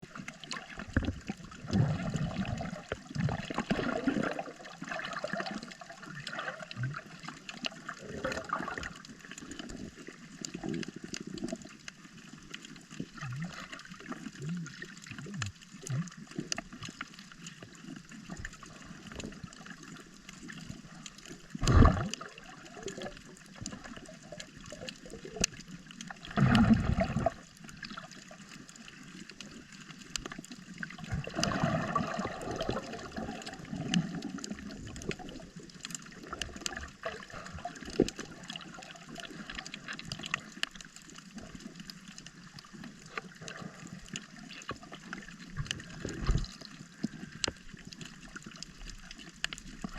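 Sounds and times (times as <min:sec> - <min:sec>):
seawater sloshing and gurgling: 0:00.0 - 0:49.9
small clicks: 0:27.4 - 0:30.6, 0:38.8 - 0:43.3, 0:44.0 - 0:49.9.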